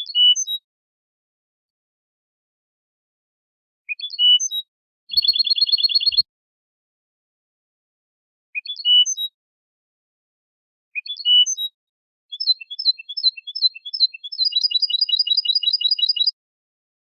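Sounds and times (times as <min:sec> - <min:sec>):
goldfinch singing: 0:03.9 - 0:06.2, 0:12.3 - 0:16.3.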